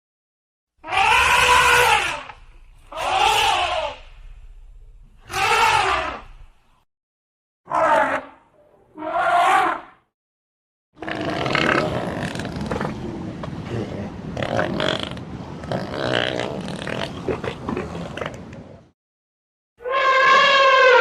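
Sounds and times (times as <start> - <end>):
animal making rough noisy calls: 0.8 - 4.1, 5.2 - 6.4, 7.7 - 8.3, 11.0 - 12.7, 19.8 - 21.0.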